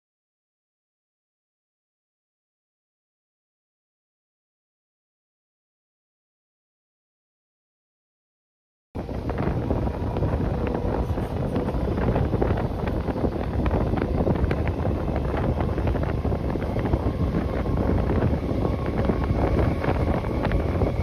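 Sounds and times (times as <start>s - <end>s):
train rumbling on track: 9.0s - 21.0s
wheels and coach clicking and rattling: 9.0s - 21.0s
wind buffeting microphone: 9.0s - 21.0s.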